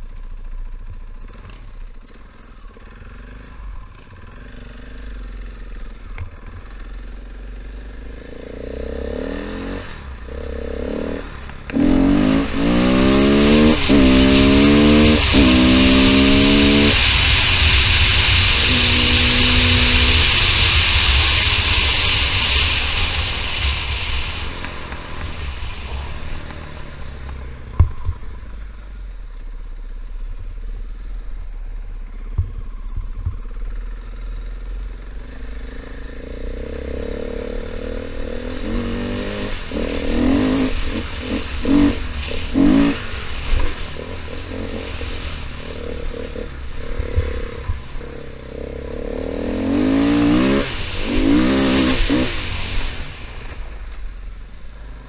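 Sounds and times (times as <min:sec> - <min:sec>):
dirt bike engine revving: 0:06.6 - 0:28.0, 0:35.5 - 0:53.9.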